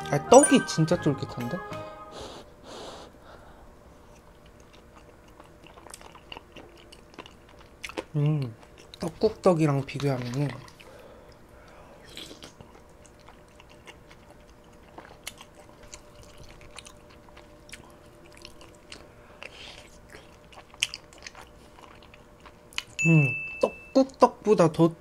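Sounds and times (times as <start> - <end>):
person chewing rice cakes: 4.0 - 23.0.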